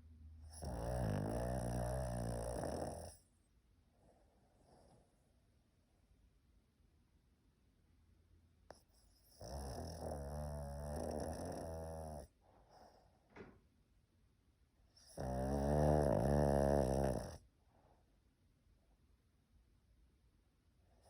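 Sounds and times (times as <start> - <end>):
dog snoring: 0.4 - 3.3, 8.7 - 13.2, 14.9 - 17.5.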